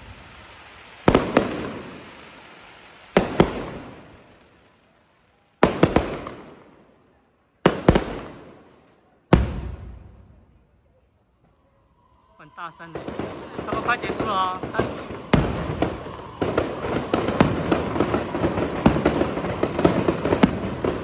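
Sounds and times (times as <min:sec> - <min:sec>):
rumbling echo: 0:12.9 - 0:21.0.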